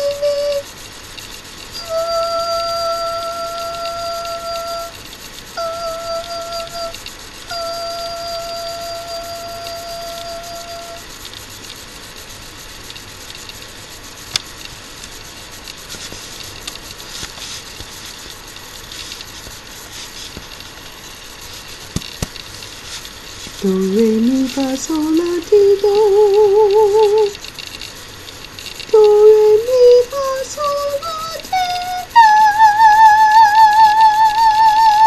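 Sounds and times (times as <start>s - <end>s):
steady hiss: 0.0s - 35.0s
sharp click: 21.8s - 23.6s.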